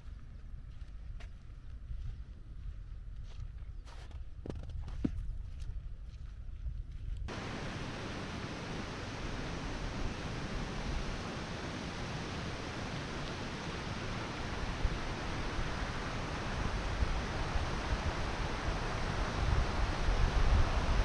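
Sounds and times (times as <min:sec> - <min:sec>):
rushing natural ambient noise: 0:07.3 - 0:21.0.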